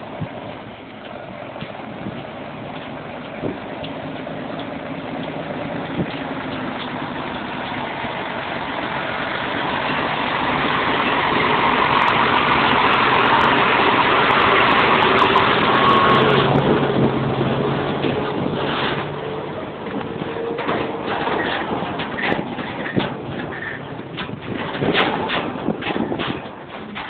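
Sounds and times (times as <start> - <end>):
truck diesel engine running: 0.0 - 27.0.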